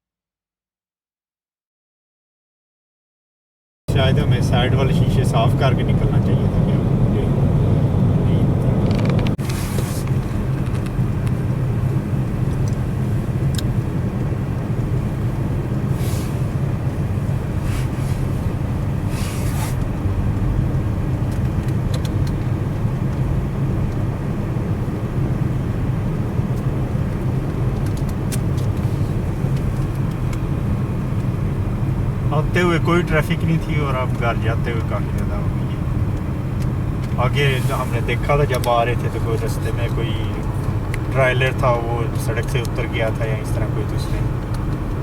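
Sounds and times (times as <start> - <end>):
car road and engine drone: 3.9 - 45.0
brief hissing: 15.9 - 16.5, 19.1 - 19.8.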